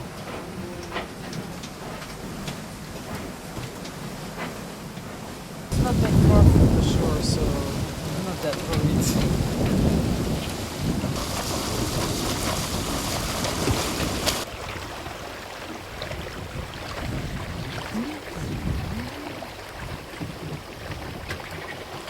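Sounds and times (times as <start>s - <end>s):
water rushing: 0.0s - 22.0s
wind buffeting microphone: 5.7s - 15.2s, 15.8s - 22.0s.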